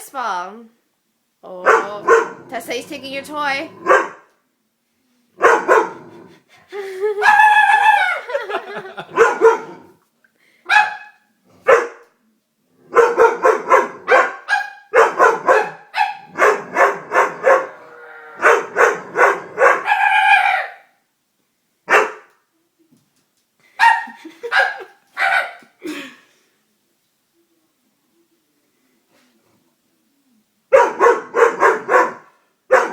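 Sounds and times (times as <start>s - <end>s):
dog barking: 1.6s - 2.5s, 3.8s - 4.3s, 5.4s - 6.0s, 9.0s - 9.8s, 10.7s - 12.1s, 12.9s - 17.8s, 18.4s - 20.9s, 21.9s - 22.3s, 23.8s - 25.7s, 30.7s - 32.9s.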